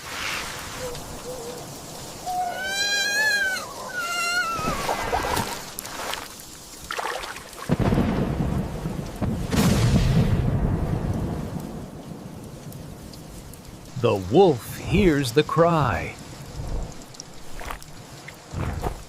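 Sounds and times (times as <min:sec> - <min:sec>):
rain falling: 0:00.0 - 0:19.0
high-pitched animal cries: 0:02.2 - 0:05.4
thunderclap rumbling: 0:07.7 - 0:17.8.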